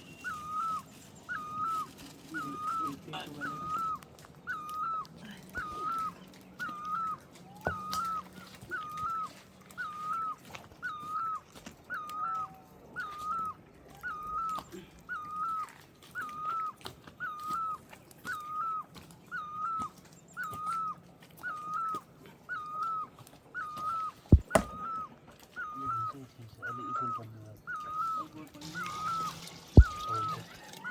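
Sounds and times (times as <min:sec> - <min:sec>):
animal high wavering call: 0:00.0 - 0:30.9
sharp knock: 0:24.4 - 0:24.8.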